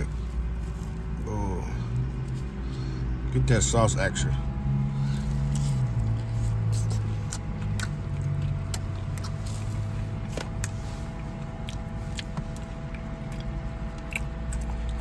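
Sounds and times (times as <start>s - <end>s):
steady low hum: 0.0s - 15.0s
chewing crunchy food: 5.0s - 15.0s.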